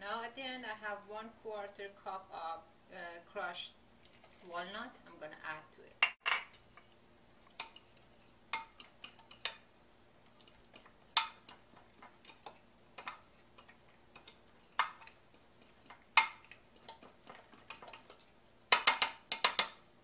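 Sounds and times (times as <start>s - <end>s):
utensil clinking against a bowl: 7.5s - 9.6s, 10.4s - 19.8s.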